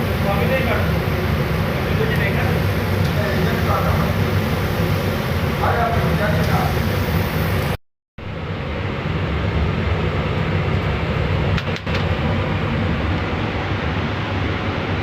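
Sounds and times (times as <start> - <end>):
laser cutter rushing noise: 0.0 - 7.8.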